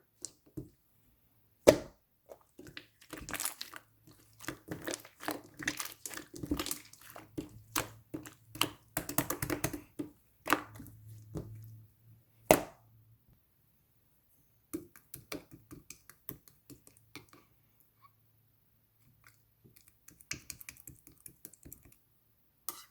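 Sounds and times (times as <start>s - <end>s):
slime popping: 1.7s - 9.9s
hands squishing slime: 1.7s - 11.7s.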